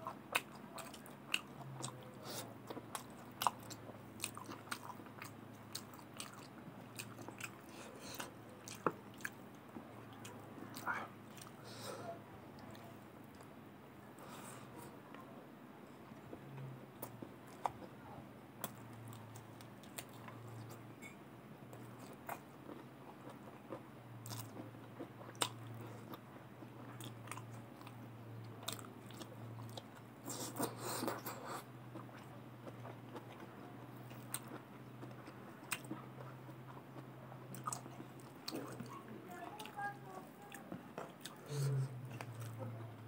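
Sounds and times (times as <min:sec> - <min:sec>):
close chewing and biting: 0:00.0 - 0:11.6, 0:21.7 - 0:39.0, 0:39.6 - 0:43.0
low steady hum: 0:00.0 - 0:43.0.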